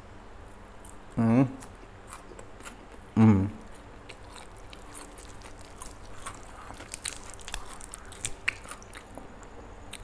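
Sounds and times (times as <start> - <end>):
chewing with wet mouth clicks: 3.6 - 10.0
small crunches: 4.1 - 9.1.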